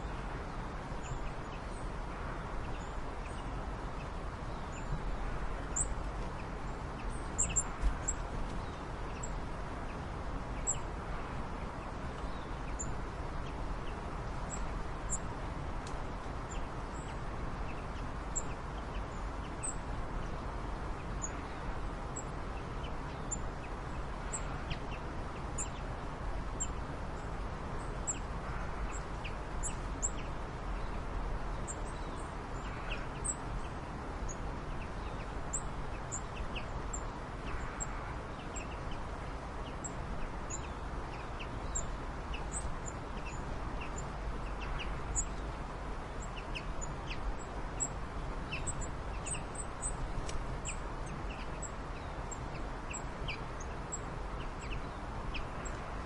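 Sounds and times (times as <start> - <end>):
birds chirping: 0.0 - 15.3, 26.6 - 56.0.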